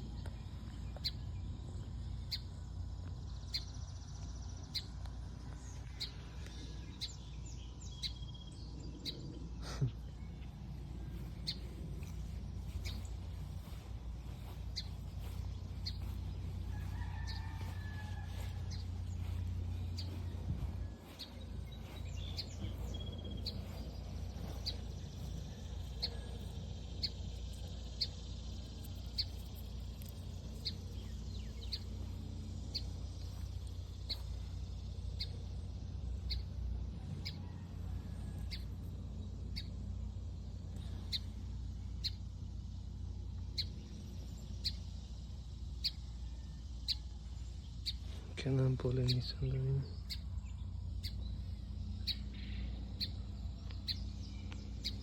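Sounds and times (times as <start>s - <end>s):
small bird chirping: 0.0s - 55.0s
low rumble: 0.1s - 37.8s.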